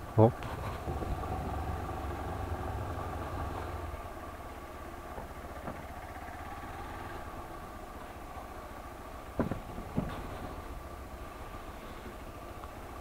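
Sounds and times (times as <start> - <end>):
motorcycle engine running at low revs: 0.0 - 13.0.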